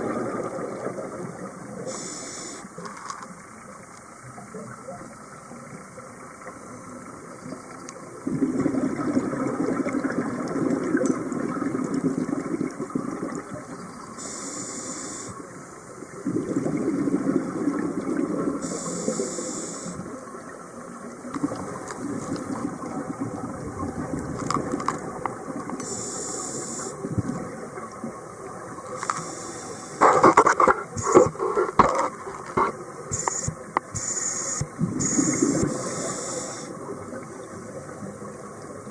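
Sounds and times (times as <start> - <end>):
exhaled bubbles rushing: 0.0 - 1.6, 8.2 - 13.8, 16.2 - 18.6
regulator inhalation hiss: 1.9 - 2.7, 14.2 - 15.4, 18.6 - 20.0, 25.8 - 27.0, 29.0 - 31.7, 33.1 - 36.8.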